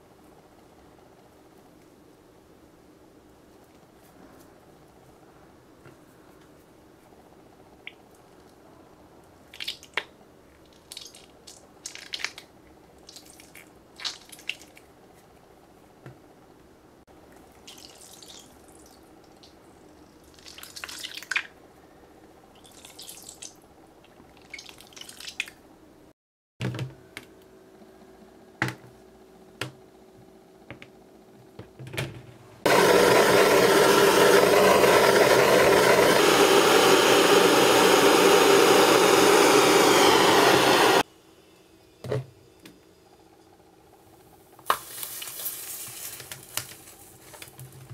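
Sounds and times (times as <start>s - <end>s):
gas torch hissing: 32.7s - 41.1s.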